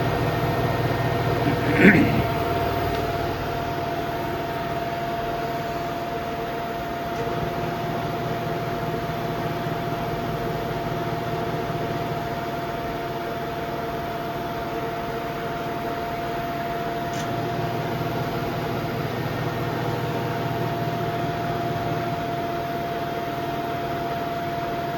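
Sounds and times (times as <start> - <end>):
washing machine spinning: 7.2 - 12.6, 17.3 - 22.7.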